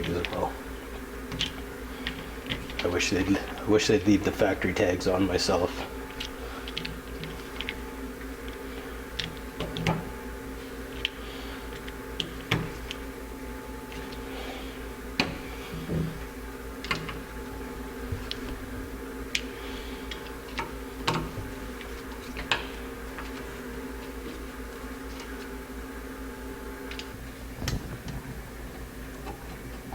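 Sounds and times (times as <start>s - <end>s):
background hum: 0.0s - 29.9s.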